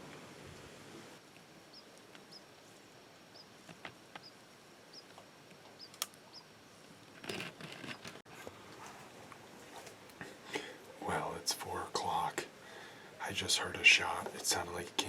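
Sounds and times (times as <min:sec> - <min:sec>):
small bird chip calls: 0:01.7 - 0:06.6.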